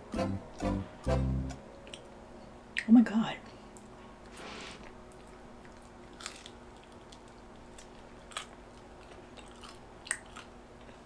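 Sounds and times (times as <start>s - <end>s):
chewing crust: 3.8s - 11.0s.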